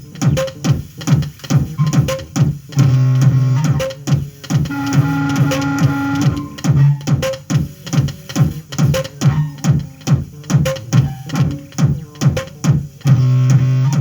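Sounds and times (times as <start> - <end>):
synthesizer music: 1.7 - 7.1.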